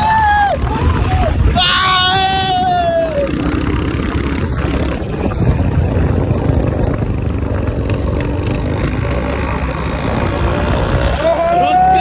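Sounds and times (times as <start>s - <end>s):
motorcycle engine rumble: 0.0s - 12.0s.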